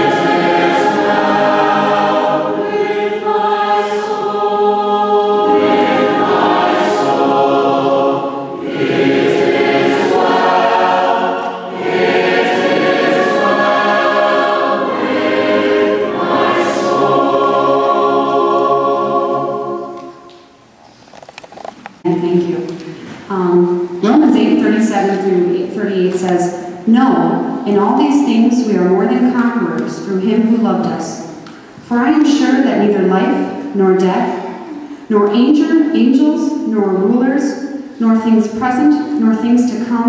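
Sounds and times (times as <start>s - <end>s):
choir singing sustained chords: 0.0s - 20.7s.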